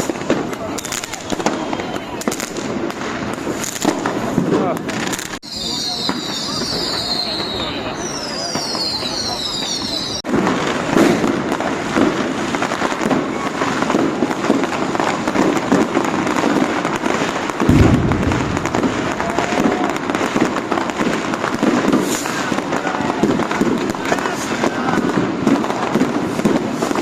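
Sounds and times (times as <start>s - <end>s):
fireworks crackling and banging: 0.0s - 27.0s
deep firework boom: 17.6s - 20.8s.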